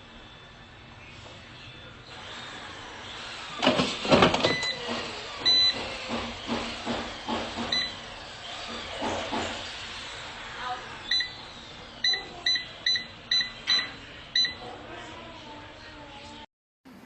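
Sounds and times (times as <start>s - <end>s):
air fryer knocks and clatter: 3.6s - 8.0s
short electronic beeps: 11.1s - 11.4s, 12.0s - 14.6s.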